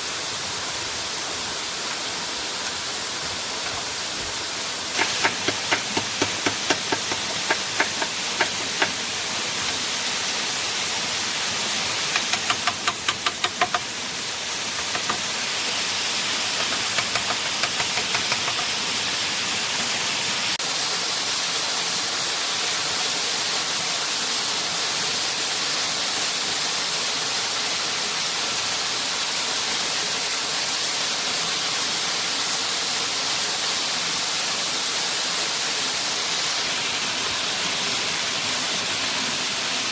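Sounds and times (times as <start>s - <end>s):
waterfall rushing: 0.0s - 23.8s
sharp knocks: 5.0s - 9.8s, 14.8s - 15.3s, 16.6s - 18.7s.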